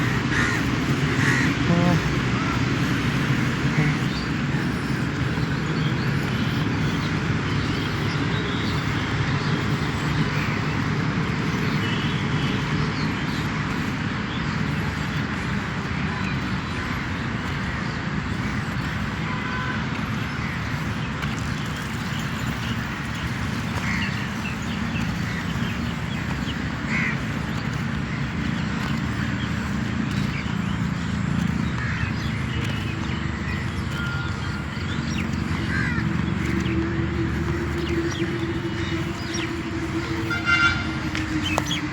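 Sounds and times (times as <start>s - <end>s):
short bird calls: 0.0s - 10.6s
outdoor background noise: 0.0s - 41.9s.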